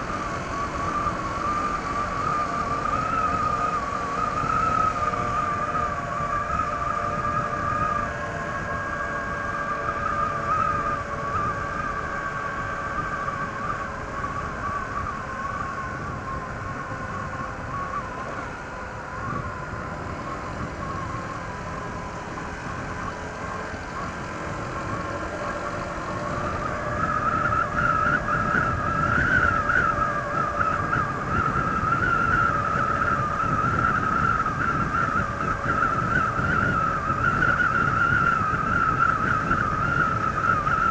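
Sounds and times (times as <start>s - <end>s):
road and wind rumble: 0.0s - 40.9s
scooter engine whine: 0.0s - 40.9s.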